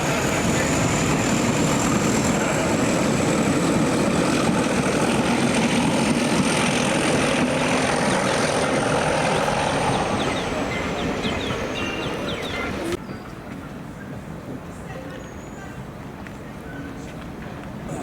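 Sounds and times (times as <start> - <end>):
diesel locomotive running: 0.0 - 13.0.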